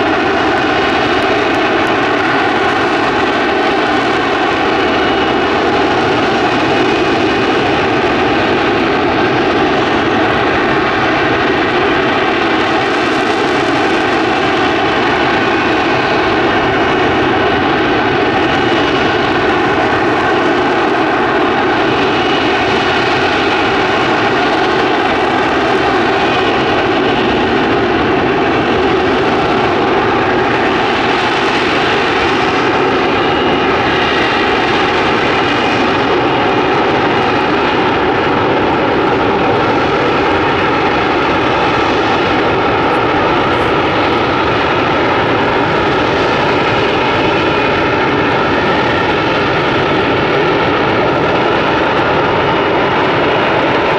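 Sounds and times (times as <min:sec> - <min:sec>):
jet engine roaring: 0:00.0 - 0:53.9
high whine: 0:32.0 - 0:53.0.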